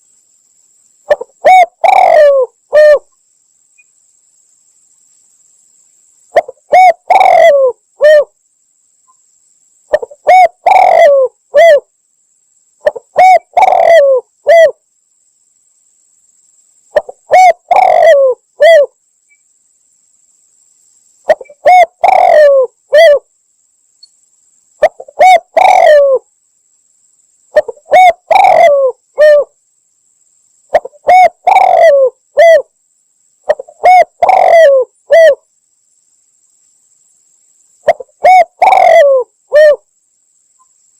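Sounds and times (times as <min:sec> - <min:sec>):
dove cooing: 0:01.1 - 0:03.1, 0:06.4 - 0:08.3, 0:09.9 - 0:11.8, 0:12.8 - 0:14.8, 0:17.0 - 0:18.9, 0:21.3 - 0:23.3, 0:24.8 - 0:26.2, 0:27.6 - 0:29.5, 0:30.7 - 0:32.7, 0:33.5 - 0:35.4, 0:37.8 - 0:39.9.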